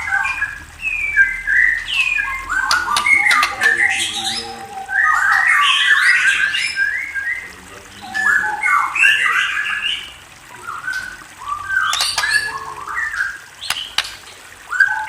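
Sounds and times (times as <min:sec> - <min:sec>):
songbird singing whistled notes: 0:00.0 - 0:15.0
sharp clicks: 0:02.7 - 0:03.6, 0:12.0 - 0:12.4, 0:13.7 - 0:14.4.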